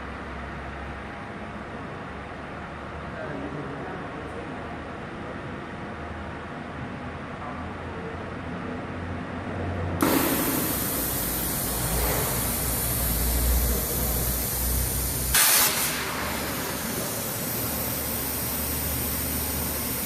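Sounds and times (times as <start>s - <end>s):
low machine hum: 0.0s - 20.0s
plasma torch hissing: 10.0s - 20.0s.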